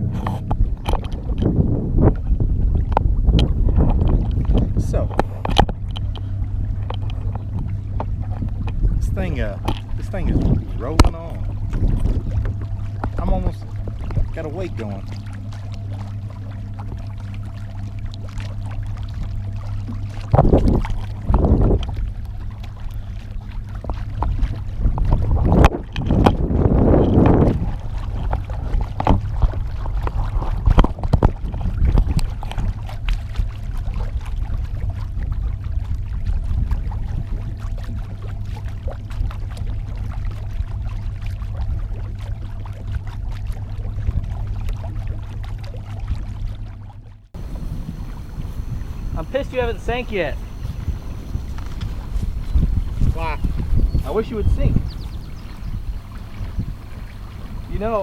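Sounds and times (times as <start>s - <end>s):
water lapping and splashing: 0.0s - 58.0s
wind rumble on microphone: 0.0s - 58.0s
electric motor humming: 47.4s - 58.0s.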